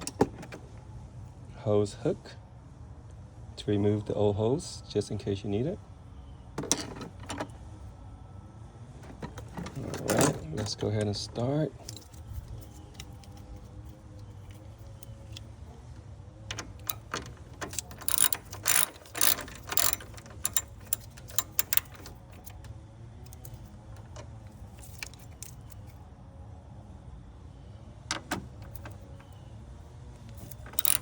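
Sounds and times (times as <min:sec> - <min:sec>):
low steady hum: 0:00.0 - 0:31.0
ratchet wrench clicking: 0:16.5 - 0:22.6, 0:23.3 - 0:25.9, 0:28.1 - 0:29.0, 0:30.3 - 0:31.0.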